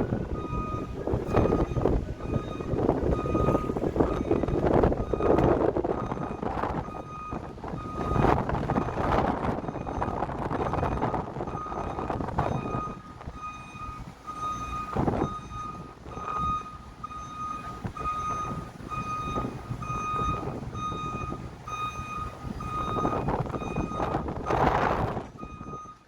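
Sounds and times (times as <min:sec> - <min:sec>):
rumbling background noise: 0:00.0 - 0:26.0
electronic warning beeper: 0:00.3 - 0:09.0.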